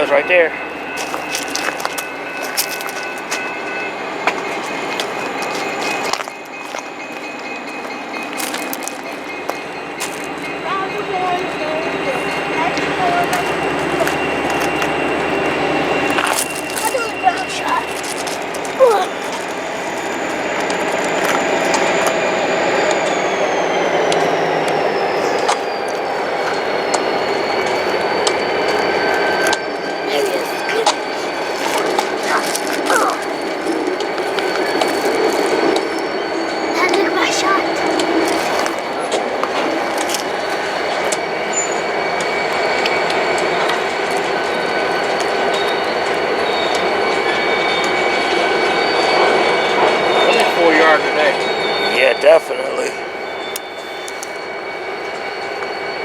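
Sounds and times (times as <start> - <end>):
wheels clicking over rail joints: 0.0 - 23.2, 24.0 - 48.8
high wheel squeal: 0.0 - 56.0
train rumbling past: 0.0 - 56.0.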